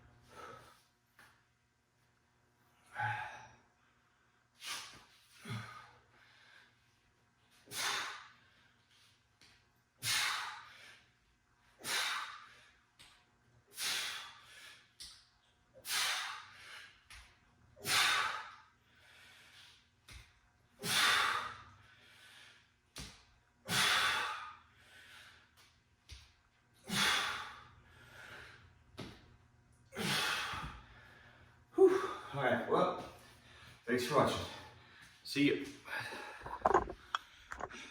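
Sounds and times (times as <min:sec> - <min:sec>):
man breathing hard: 0:02.8 - 0:07.0, 0:07.6 - 0:09.1, 0:10.0 - 0:12.9, 0:13.7 - 0:15.0, 0:15.8 - 0:19.9, 0:20.8 - 0:22.8, 0:23.7 - 0:25.6, 0:26.8 - 0:28.9, 0:29.9 - 0:32.4.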